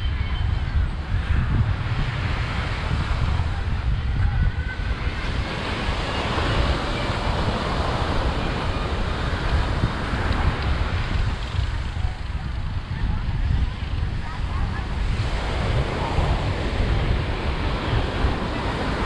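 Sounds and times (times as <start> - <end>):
wind on microphone: 0.0 - 19.0
ocean surf breaking: 1.0 - 19.0.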